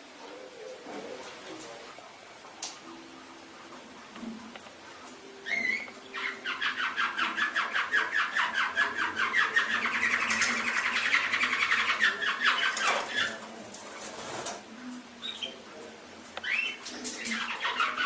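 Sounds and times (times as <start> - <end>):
canary singing trill: 5.2 - 14.3, 16.4 - 18.0.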